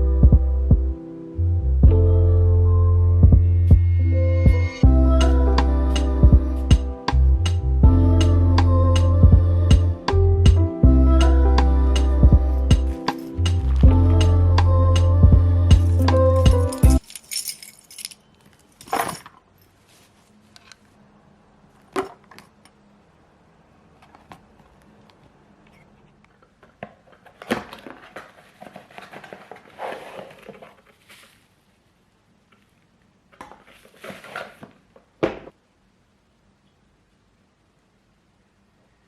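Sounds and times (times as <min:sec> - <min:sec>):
rustling or scraping: 0:15.9 - 0:21.0, 0:27.0 - 0:34.8.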